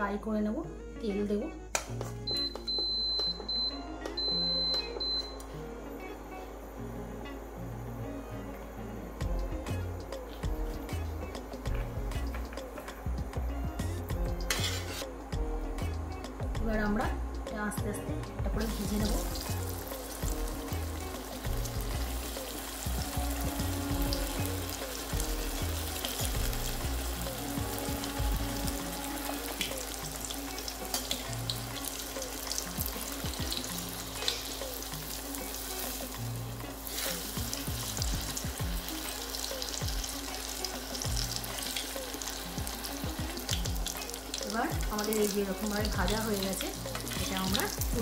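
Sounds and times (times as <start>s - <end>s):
food frying in hot oil: 14.1s - 15.1s, 18.6s - 48.0s.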